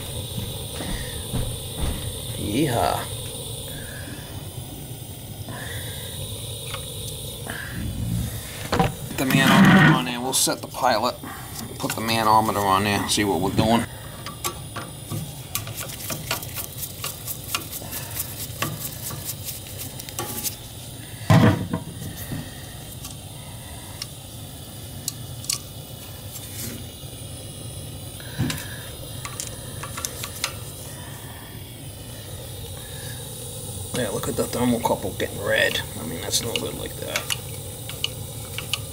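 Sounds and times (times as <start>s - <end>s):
low rumble: 7.4s - 10.0s
metal clicks of hand tools: 14.2s - 17.7s, 36.5s - 38.9s.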